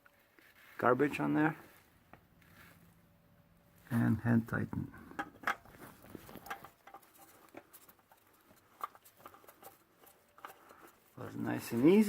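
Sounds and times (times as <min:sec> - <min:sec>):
oil filter screwed on by hand: 0:05.1 - 0:11.2.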